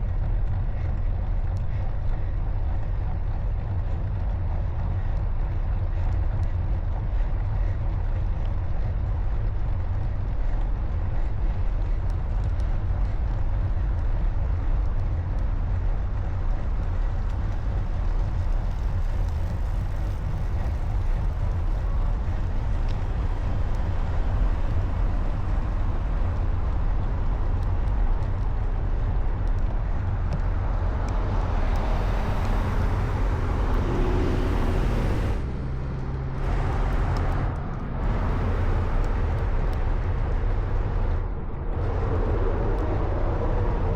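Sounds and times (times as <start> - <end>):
traffic: 0.0 - 43.9
wind and road noise: 0.0 - 43.9
vehicle passing close: 31.0 - 40.7.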